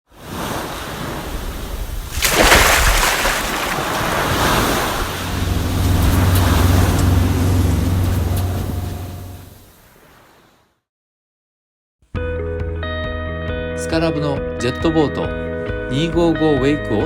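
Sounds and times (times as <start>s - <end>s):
rushing water: 0.9s - 9.8s
low engine drone: 5.1s - 9.5s.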